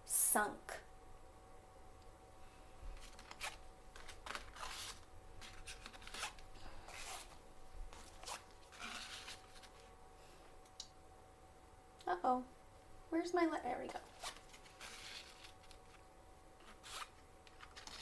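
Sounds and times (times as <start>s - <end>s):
cards rustling and clicking: 2.9s - 9.9s, 13.9s - 16.0s, 16.6s - 18.0s.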